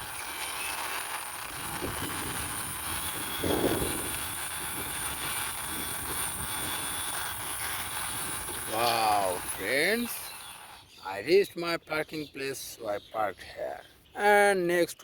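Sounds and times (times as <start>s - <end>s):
plastic toy wheels rolling: 0.0s - 10.9s
toy scraping: 0.0s - 11.4s.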